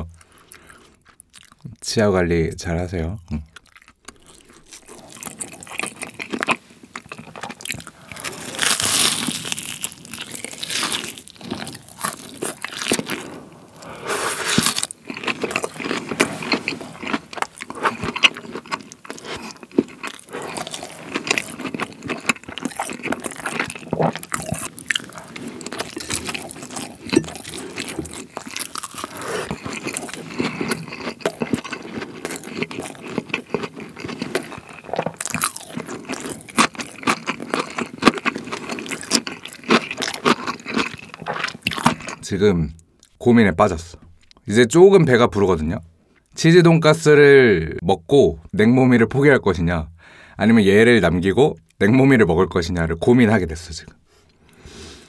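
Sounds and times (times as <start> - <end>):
chewing: 0.2 - 1.7, 3.2 - 42.3
crunching fried food: 0.2 - 1.7, 3.2 - 43.2.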